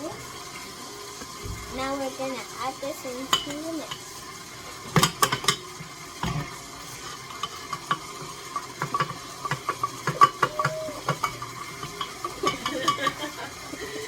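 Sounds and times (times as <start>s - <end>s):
utensil scraping a mixing bowl: 3.3s - 13.4s.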